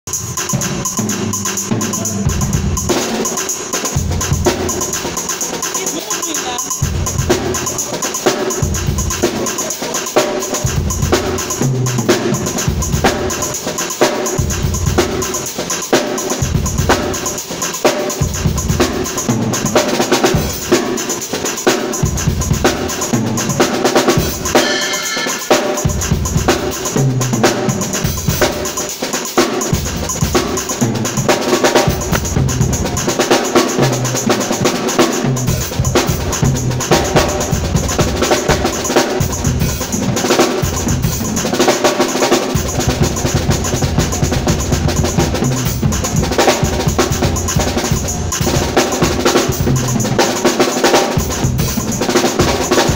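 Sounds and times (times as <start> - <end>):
drum kit groove: 0.0 - 52.9.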